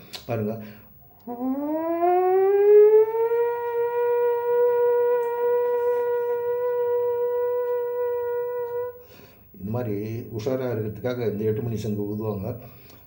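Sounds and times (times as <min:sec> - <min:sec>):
man imitating siren by mouth: 0:01.0 - 0:09.3.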